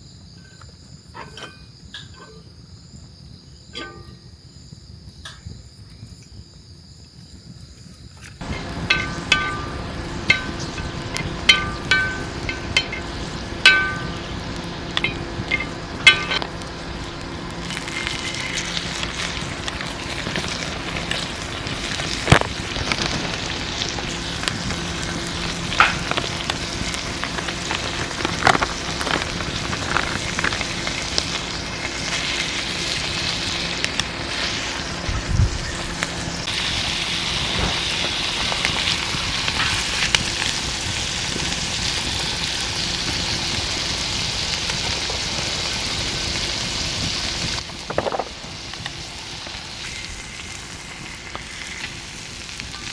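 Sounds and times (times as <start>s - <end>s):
ringing clinks: 3.7s - 4.4s
beef sizzling: 8.4s - 52.9s.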